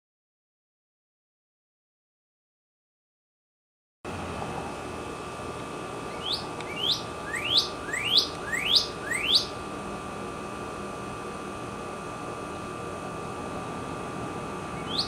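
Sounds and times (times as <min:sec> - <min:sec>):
bird singing rising whistles: 0:06.1 - 0:09.6, 0:14.8 - 0:15.0.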